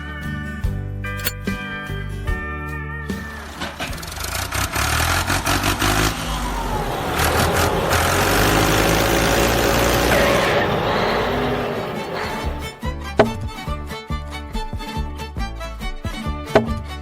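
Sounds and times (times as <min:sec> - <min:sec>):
clicks: 0:01.2 - 0:01.4
engine revving: 0:03.2 - 0:12.9.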